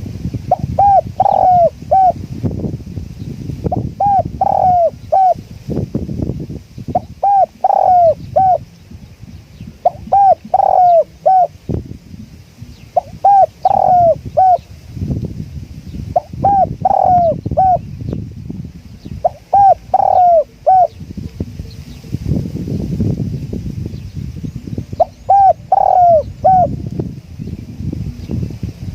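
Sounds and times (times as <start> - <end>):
wind rumble on microphone: 0.0 - 28.9
dove cooing: 0.5 - 2.2, 3.7 - 5.4, 6.9 - 8.7, 9.7 - 11.6, 12.2 - 14.6, 16.2 - 17.8, 19.2 - 22.0, 25.0 - 26.8.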